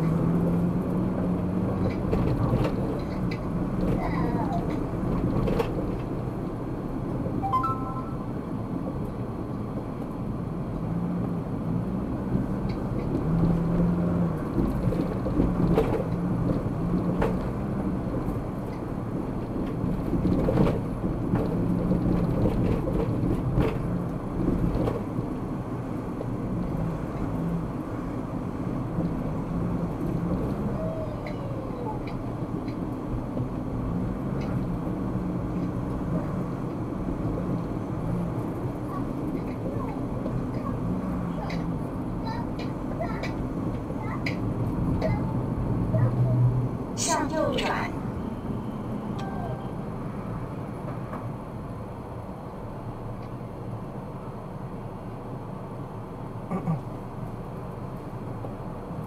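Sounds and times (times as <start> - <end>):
car engine and road rumble: 0.0 - 59.0
brief tone: 7.4 - 8.5, 48.2 - 50.0.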